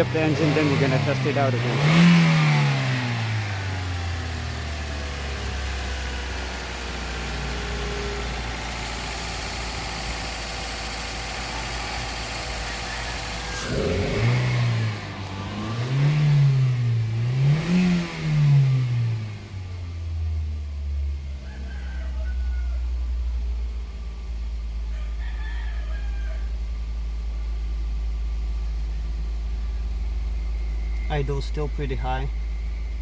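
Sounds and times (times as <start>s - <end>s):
car engine revving: 0.0s - 20.4s.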